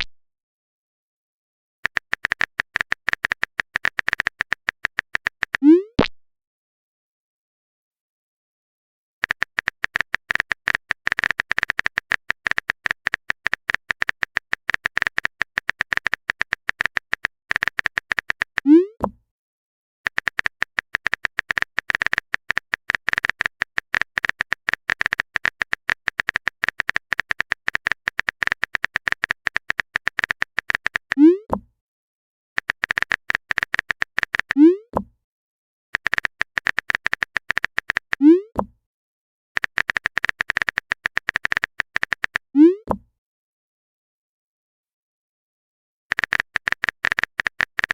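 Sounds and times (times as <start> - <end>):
keyboard typing clicks: 1.8 - 5.7, 9.2 - 19.2, 20.1 - 31.6, 32.6 - 35.1, 36.0 - 38.7, 39.6 - 43.0, 46.1 - 47.9.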